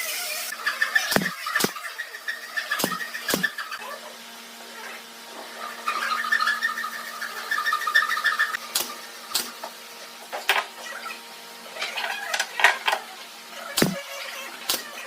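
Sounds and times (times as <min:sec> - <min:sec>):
pulsing buzz: 0:00.9 - 0:01.8.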